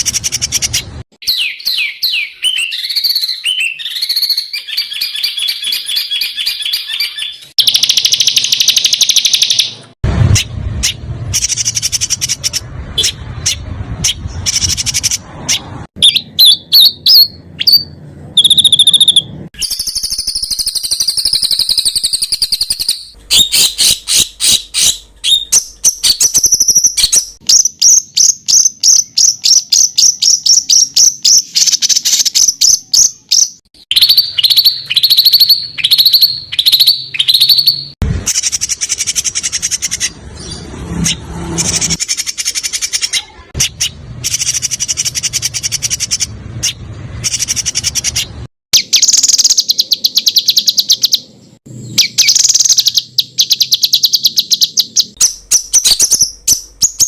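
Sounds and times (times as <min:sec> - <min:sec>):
buzzy bird trill: 0:00.0 - 0:57.0
songbirds singing: 0:00.0 - 0:57.0
downward-sweeping bird whistles: 0:01.2 - 0:09.7, 0:16.0 - 0:39.8.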